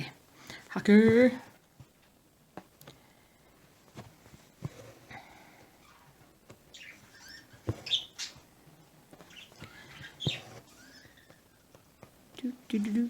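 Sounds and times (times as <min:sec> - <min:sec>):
small birds chirping: 0:05.8 - 0:08.5, 0:09.2 - 0:11.8.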